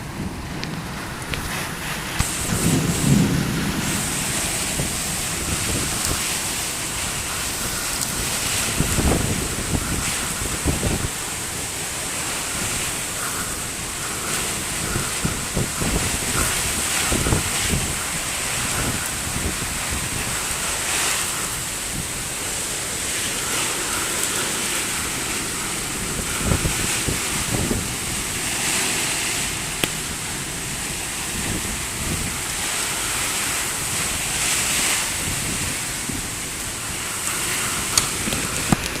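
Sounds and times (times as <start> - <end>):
heavy rain falling: 0.0 - 39.0
wind buffeting microphone: 0.0 - 39.0.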